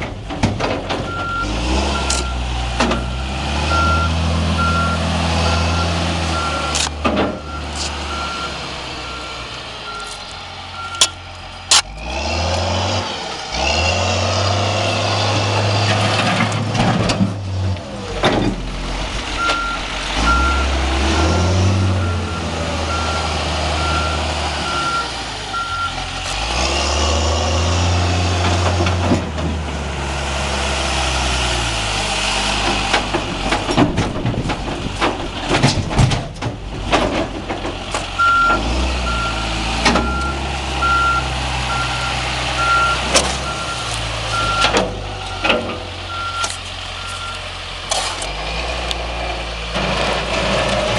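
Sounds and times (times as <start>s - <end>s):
diesel engine revving: 0.0s - 50.9s
engine whine: 0.0s - 50.9s
reversing alarm beeps: 3.0s - 6.8s, 7.4s - 10.2s, 19.4s - 26.0s, 38.2s - 44.7s, 46.1s - 47.4s.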